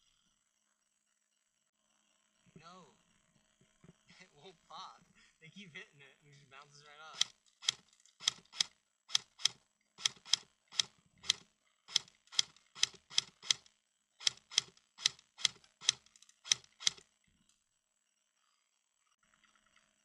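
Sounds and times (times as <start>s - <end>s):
airsoft gun firing single shots: 7.2s - 17.0s.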